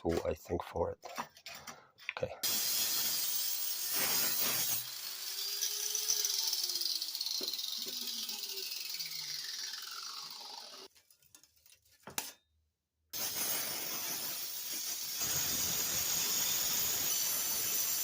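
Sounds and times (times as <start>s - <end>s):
angle grinder cutting steel: 2.4s - 10.9s, 13.2s - 18.0s.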